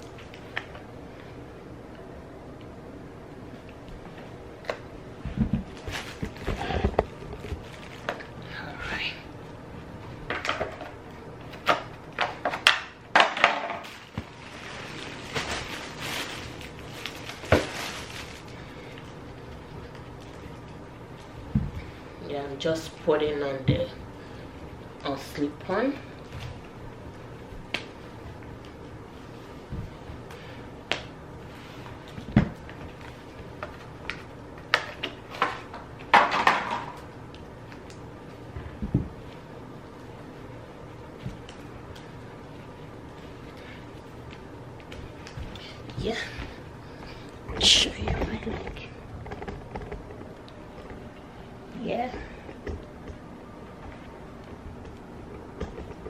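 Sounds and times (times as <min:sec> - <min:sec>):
slippers knocking and rustling: 0:05.2 - 0:08.2
rustling and scraping: 0:05.2 - 0:08.4, 0:13.3 - 0:22.1, 0:41.0 - 0:56.0.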